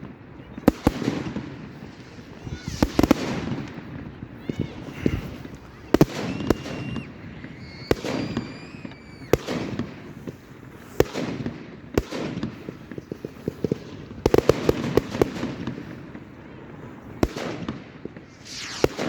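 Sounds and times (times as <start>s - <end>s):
fireworks bangs: 0.0s - 19.0s
fireworks whistling: 0.6s - 10.5s, 17.5s - 19.0s.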